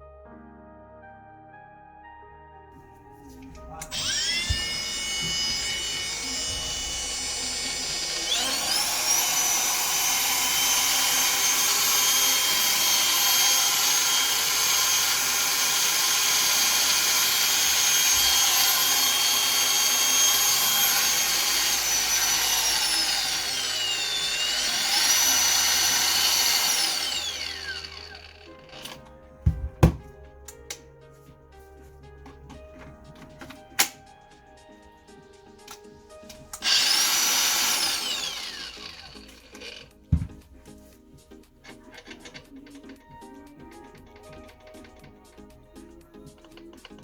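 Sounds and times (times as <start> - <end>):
angle grinder motor whine: 3.6 - 29.0, 36.6 - 40.3.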